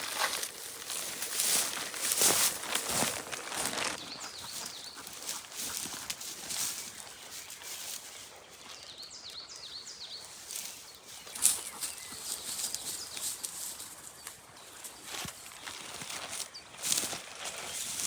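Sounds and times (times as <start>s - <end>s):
songbird chirping: 0.3s - 18.0s.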